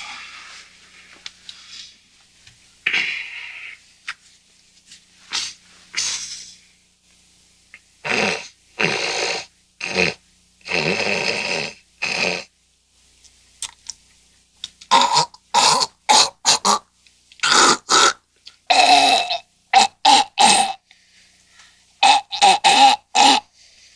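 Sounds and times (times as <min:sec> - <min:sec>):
man snorting and hawking: 0:02.9 - 0:03.8, 0:05.3 - 0:06.6, 0:08.0 - 0:12.5, 0:14.9 - 0:16.8, 0:17.4 - 0:20.8, 0:22.0 - 0:23.5.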